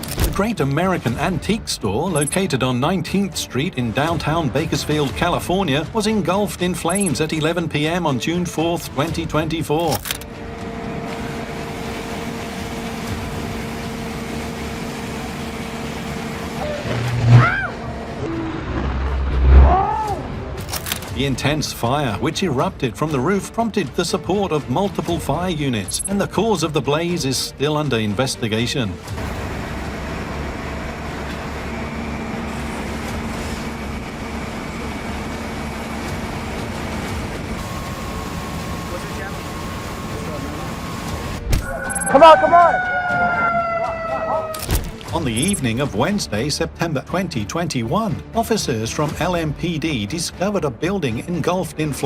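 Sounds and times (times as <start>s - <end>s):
engines rumbling: 0.0s - 23.2s, 25.1s - 42.7s, 44.9s - 46.9s
mechanical hum with two tones: 9.9s - 21.1s, 29.0s - 42.4s
steady low rumble: 17.0s - 20.6s.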